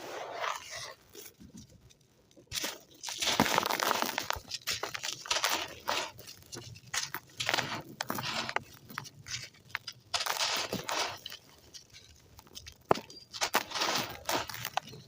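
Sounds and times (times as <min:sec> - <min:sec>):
sand crunching in hand: 0:13.4 - 0:14.8.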